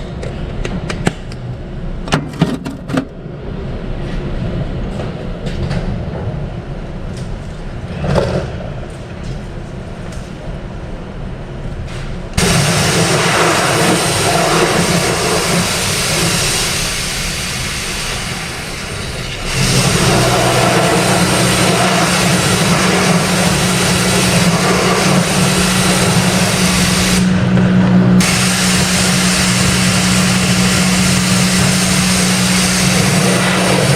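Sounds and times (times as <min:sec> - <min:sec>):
steady low hum: 0:00.0 - 0:33.9
machine hissing: 0:12.4 - 0:33.9.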